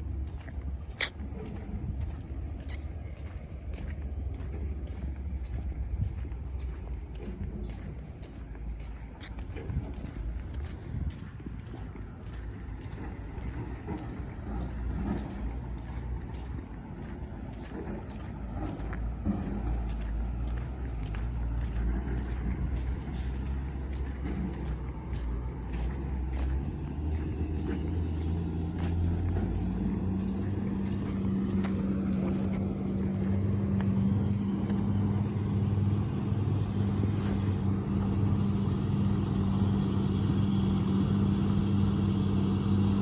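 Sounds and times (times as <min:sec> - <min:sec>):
heavy diesel engine running: 0:00.0 - 0:43.0.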